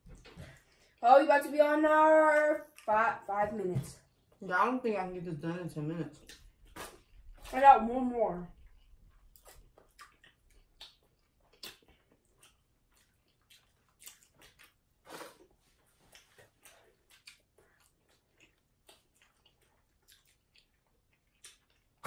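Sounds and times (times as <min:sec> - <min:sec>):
faint chewing: 0:08.4 - 0:22.0
mouth clicks and smacks: 0:09.3 - 0:15.3.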